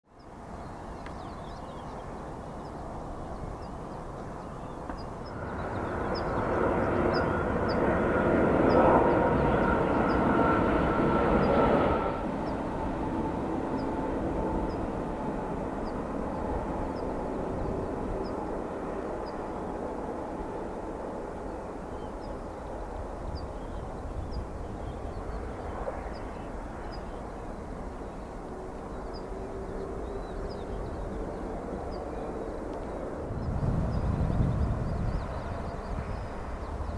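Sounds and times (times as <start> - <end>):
jet airliner engine rumble: 0.1 - 36.9
small birds chirping: 0.2 - 10.6, 21.9 - 36.9.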